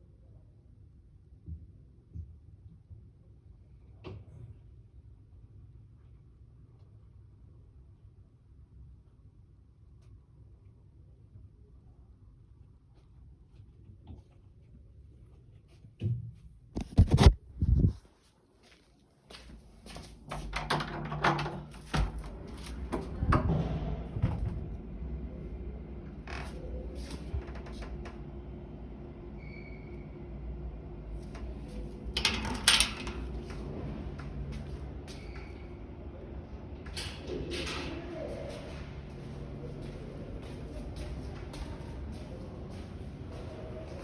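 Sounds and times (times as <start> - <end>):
low steady hum: 20.6 - 44.0
low rumble: 22.0 - 44.0.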